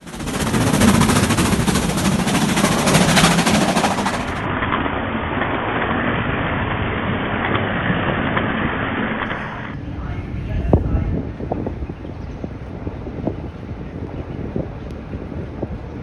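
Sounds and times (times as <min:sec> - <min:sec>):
steam locomotive exhaust beats: 0:00.0 - 0:04.5, 0:09.7 - 0:16.0
train running rumble: 0:00.0 - 0:05.1, 0:09.2 - 0:16.0.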